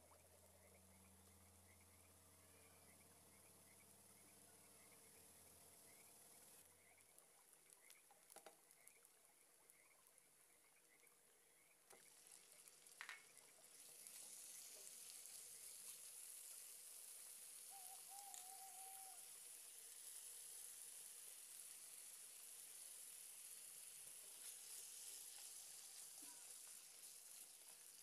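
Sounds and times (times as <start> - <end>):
chicken frying: 3.2 - 28.0
onions sizzling in a pan: 11.9 - 28.0.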